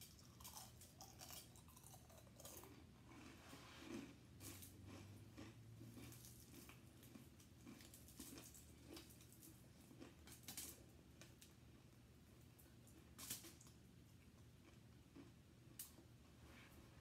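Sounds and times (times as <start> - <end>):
person chewing: 0.0 - 10.9, 13.5 - 16.1.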